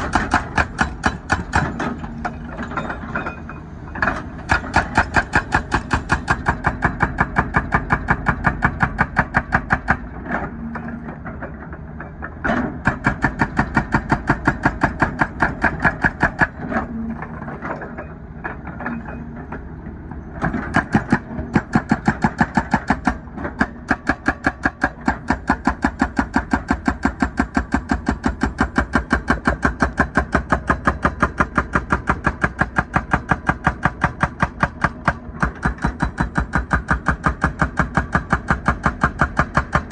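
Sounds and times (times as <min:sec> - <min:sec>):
hydraulic hammer pounding asphalt: 0:00.0 - 0:19.6, 0:20.4 - 0:39.9
excavator engine running: 0:00.0 - 0:39.9.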